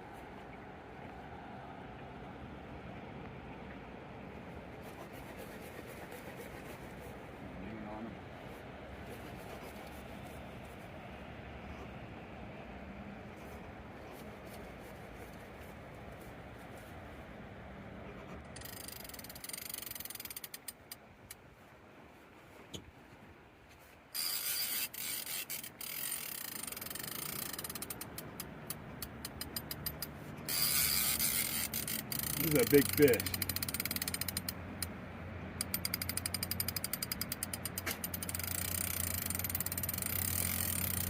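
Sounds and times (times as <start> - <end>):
fishing reel ratcheting: 18.5 - 21.0, 24.2 - 34.9, 35.6 - 41.0.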